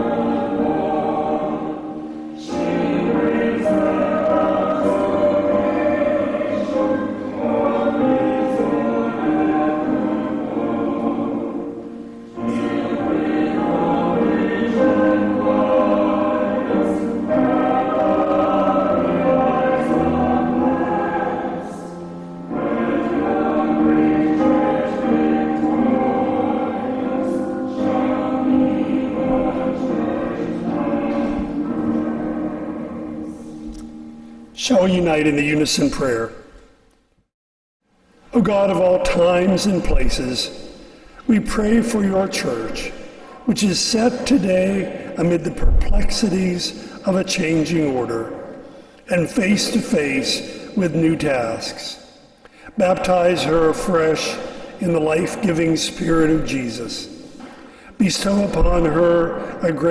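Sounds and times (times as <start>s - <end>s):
piano accompaniment: 0.0s - 36.1s, 52.8s - 59.9s
small group singing a hymn: 0.0s - 36.2s, 38.4s - 59.9s.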